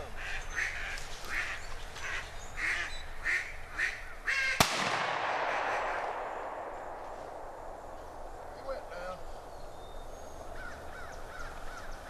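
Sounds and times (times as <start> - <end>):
ducks quacking: 0.0 - 4.6
shotgun blast echoing: 4.6 - 8.4.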